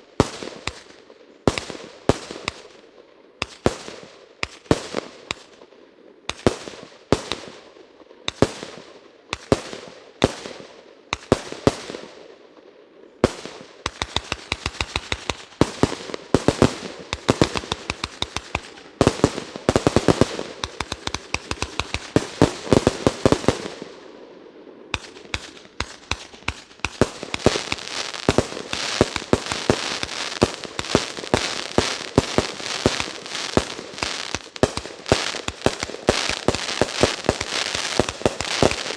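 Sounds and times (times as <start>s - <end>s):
dense crackling with pops: 3.4s - 5.7s, 13.2s - 24.0s, 24.7s - 38.9s
rapid volleys of firework reports: 13.3s - 23.9s, 24.9s - 38.9s
firework reports with ringing tail: 13.3s - 38.9s.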